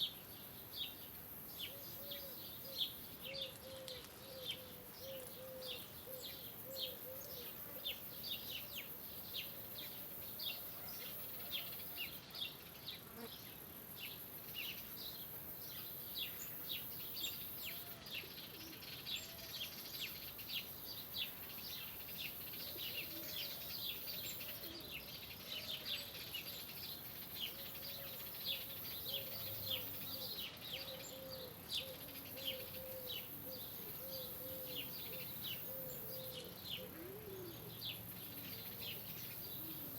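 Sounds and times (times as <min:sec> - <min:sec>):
small birds chirping chorus: 0:00.0 - 0:39.9
low repeated bird call: 0:29.0 - 0:37.8.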